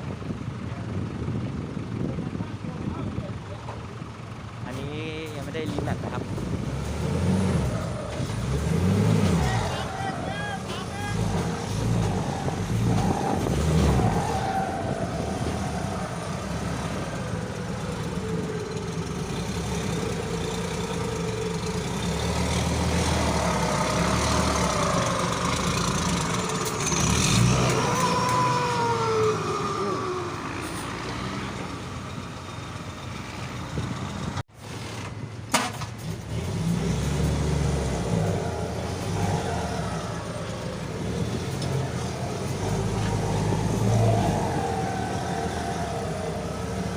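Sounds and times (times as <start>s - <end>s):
engine revving through loud exhaust: 5.8s - 18.3s, 19.1s - 31.9s, 36.1s - 46.9s.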